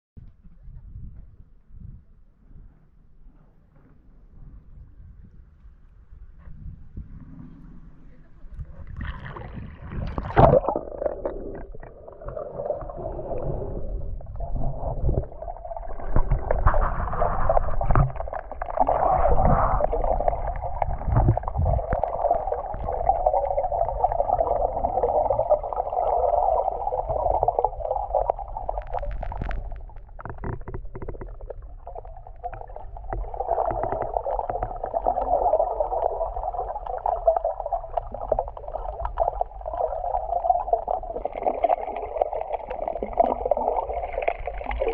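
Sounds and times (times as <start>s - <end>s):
low underwater bumps: 6.2s - 44.9s
muffled underwater rushing: 6.8s - 44.9s.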